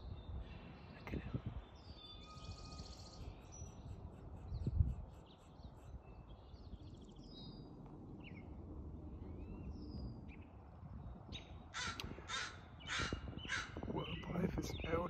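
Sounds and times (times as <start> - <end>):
songbirds chirping: 0.0 - 15.0
crow cawing: 11.7 - 13.9.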